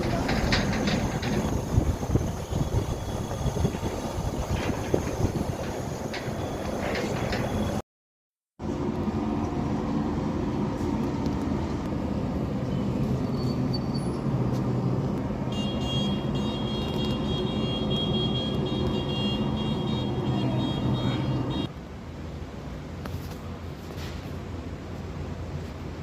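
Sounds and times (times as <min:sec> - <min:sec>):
high steady whine: 0:00.0 - 0:07.8.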